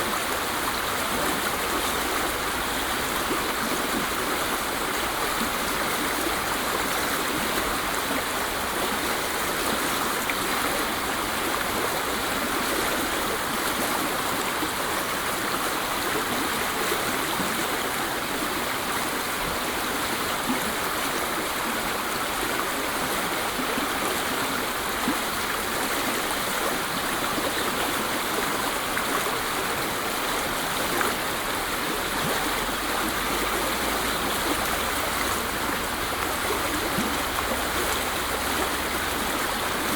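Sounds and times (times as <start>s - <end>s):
waterfall roaring: 30.4s - 39.9s.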